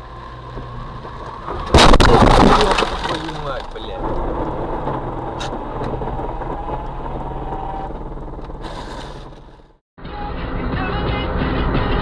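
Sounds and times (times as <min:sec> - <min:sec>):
car engine running: 0:02.6 - 0:09.8.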